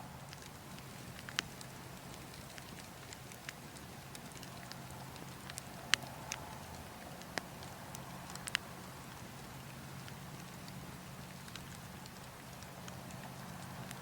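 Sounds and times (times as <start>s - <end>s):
burning logs crackling: 0.0s - 14.0s.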